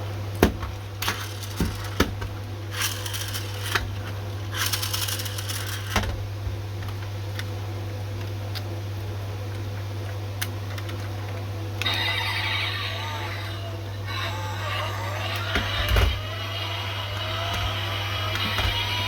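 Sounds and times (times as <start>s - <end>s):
steady low hum: 0.0s - 19.0s
toy car scraping or rolling: 2.7s - 3.8s, 4.6s - 5.9s, 11.8s - 19.0s.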